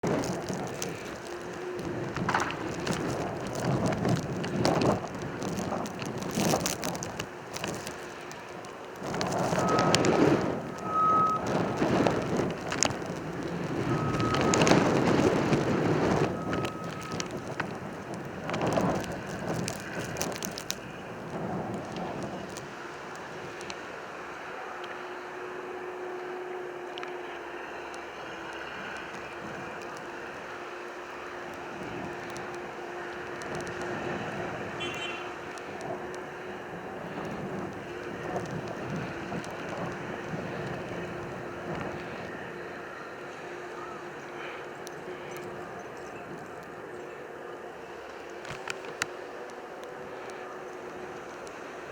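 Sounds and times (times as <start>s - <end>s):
wind buffeting microphone: 0.0s - 24.5s, 25.2s - 51.9s
wind gusting: 0.0s - 26.9s, 27.5s - 51.9s
constant low hum: 0.0s - 51.9s.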